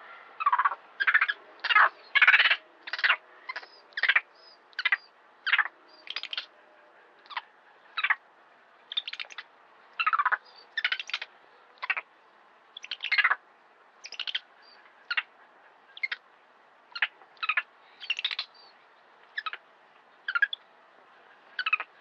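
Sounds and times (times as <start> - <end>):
bird chirping: 0.4 - 6.6, 8.9 - 12.0, 12.8 - 13.4, 14.0 - 15.3, 15.9 - 16.2, 16.9 - 20.7, 21.6 - 22.0.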